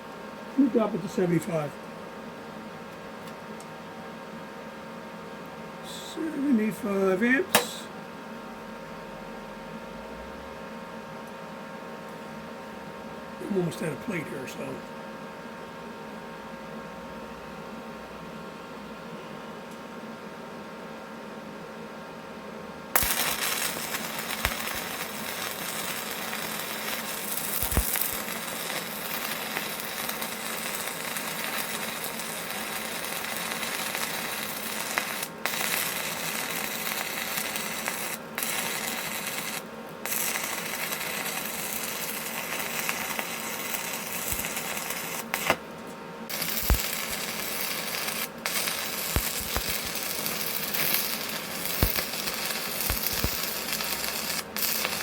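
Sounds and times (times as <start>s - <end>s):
welding arc crackling: 23.0s - 45.7s, 46.3s - 55.0s.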